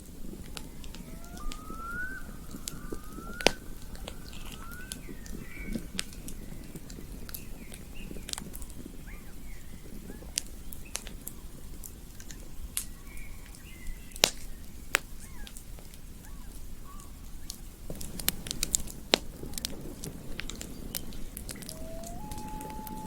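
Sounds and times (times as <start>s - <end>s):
campfire crackling and popping: 0.0s - 23.0s
faint short chirps: 21.5s - 23.0s.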